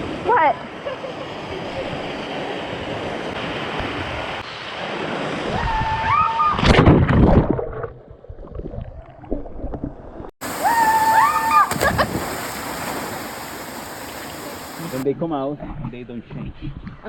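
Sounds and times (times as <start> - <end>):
loud water splashing: 10.4 - 15.0
rushing water: 10.4 - 15.0.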